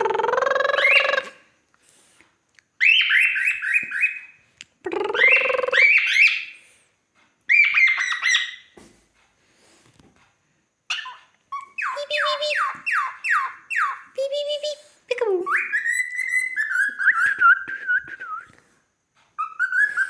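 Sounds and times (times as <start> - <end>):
cockatiel squawking and beeping: 7.5 - 8.6, 10.9 - 14.0.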